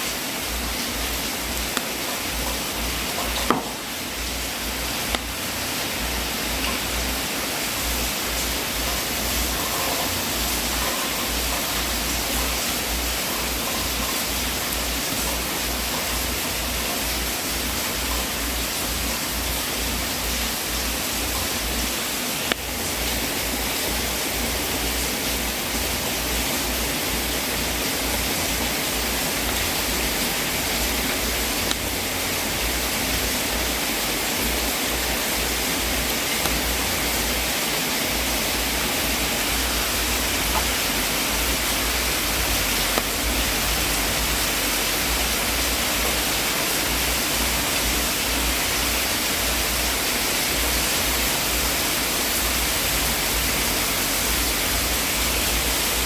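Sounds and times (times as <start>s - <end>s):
wood fire hissing: 0.0s - 56.0s
fire popping: 28.1s - 31.9s, 34.4s - 37.3s.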